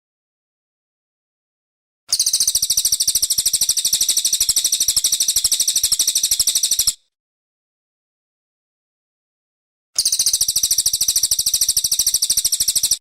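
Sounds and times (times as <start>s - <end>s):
bird rapid high trill: 2.1s - 7.0s, 10.0s - 13.0s.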